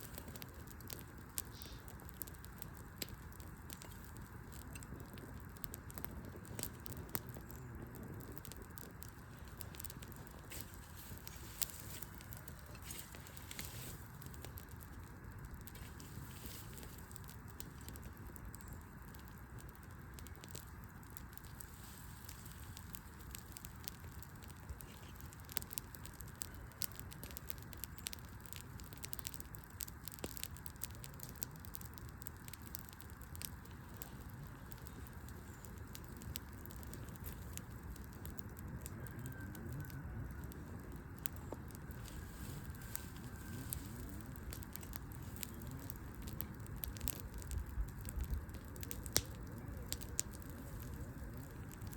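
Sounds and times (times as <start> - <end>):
wood fire crackling and popping: 0.0 - 51.9.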